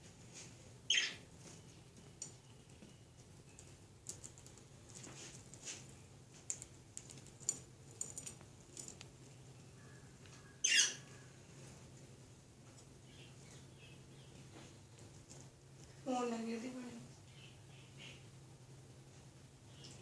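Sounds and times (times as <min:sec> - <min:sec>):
budgies chirping: 0:00.9 - 0:01.2, 0:10.5 - 0:11.1.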